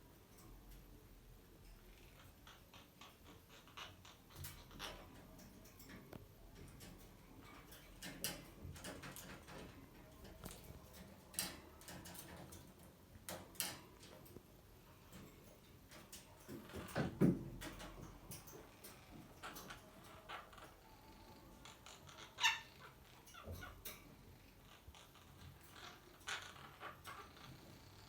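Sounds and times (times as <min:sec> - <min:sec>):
parakeet chirp: 0:20.0 - 0:23.8.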